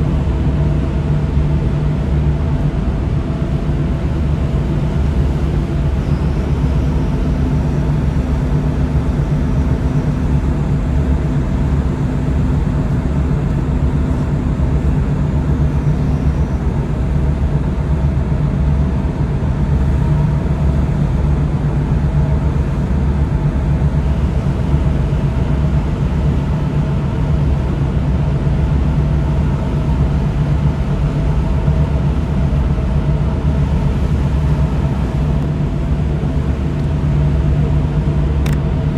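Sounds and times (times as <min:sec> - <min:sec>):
diesel engine humming: 0:00.0 - 0:38.9
steady tones: 0:02.6 - 0:26.9.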